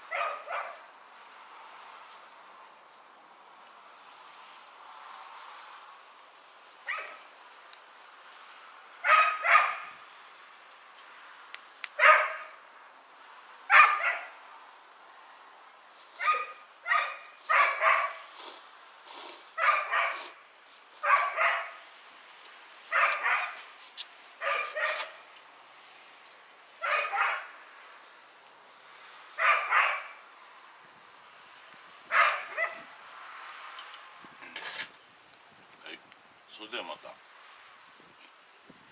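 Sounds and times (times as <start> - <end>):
dog barking: 0.1 - 0.9, 6.9 - 7.3, 9.0 - 10.0, 12.0 - 12.6, 13.7 - 14.4, 16.2 - 18.3, 19.6 - 20.4, 21.0 - 21.8, 22.9 - 23.6, 24.4 - 25.2, 26.8 - 27.6, 29.4 - 30.2, 32.1 - 32.9.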